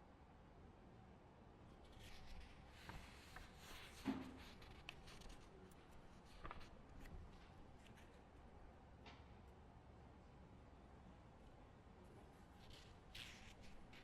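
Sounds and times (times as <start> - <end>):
paper rustling: 1.9 - 8.2, 12.6 - 14.0.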